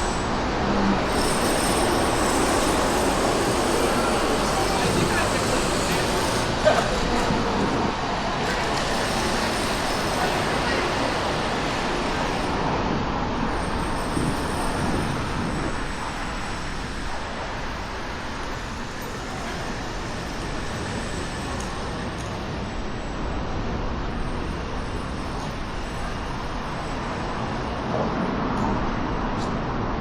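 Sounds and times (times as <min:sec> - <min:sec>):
road traffic passing: 0:00.0 - 0:23.1.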